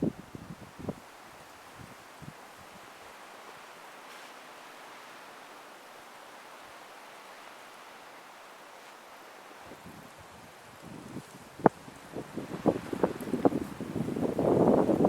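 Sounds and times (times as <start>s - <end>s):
strong wind hissing: 9.6s - 15.0s.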